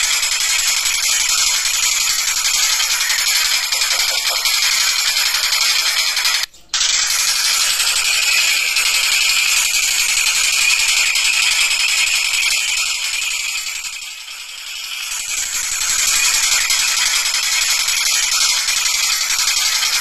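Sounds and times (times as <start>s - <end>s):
kingfisher rattling chatter calls: 2.0s - 6.4s.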